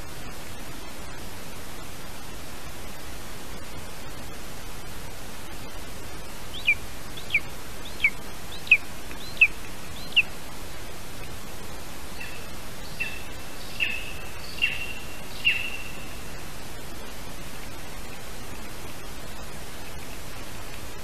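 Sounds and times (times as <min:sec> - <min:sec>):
microphone hiss: 0:00.0 - 0:21.0
bird sharp downward calls: 0:06.5 - 0:10.3, 0:12.2 - 0:16.2.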